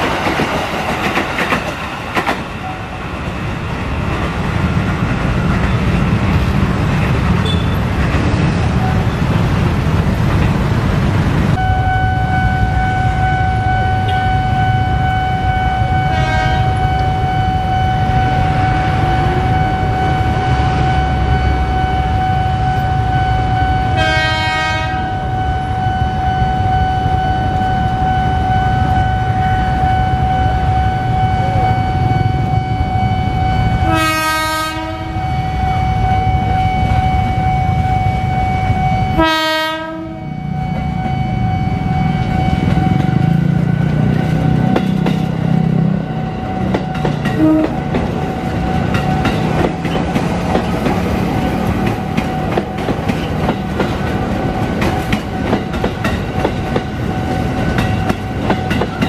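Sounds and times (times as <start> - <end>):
train passing rumble: 0.0 - 59.0
high warning tone: 11.5 - 59.0
train horn blasts: 11.6 - 43.6, 47.2 - 48.0.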